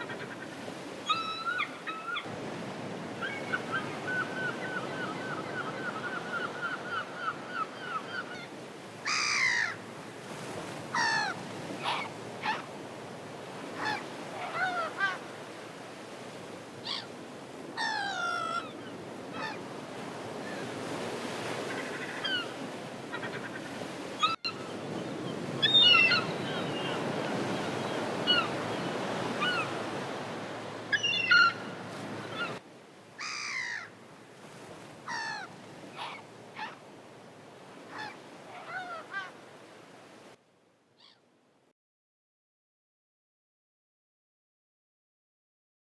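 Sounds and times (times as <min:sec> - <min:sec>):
gulls calling: 0:00.0 - 0:02.3, 0:03.1 - 0:09.8, 0:10.8 - 0:12.8, 0:13.6 - 0:32.6, 0:35.0 - 0:36.8.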